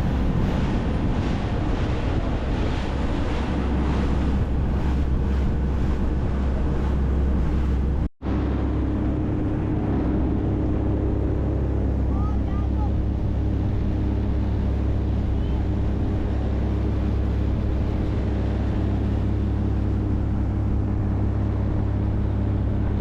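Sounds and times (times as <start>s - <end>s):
boat engine running: 0.0s - 23.0s
wind on microphone: 0.0s - 23.0s.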